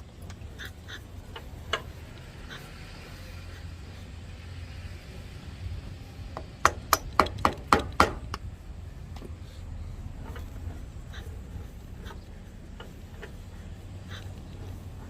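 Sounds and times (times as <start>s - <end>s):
steady low hum: 0.0s - 15.0s
hammer tapping: 6.4s - 8.4s.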